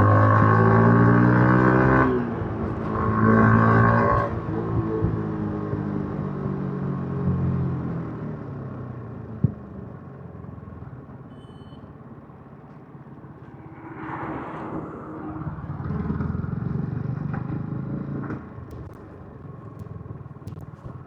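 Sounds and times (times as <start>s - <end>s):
motorcycle engine: 13.3s - 21.0s.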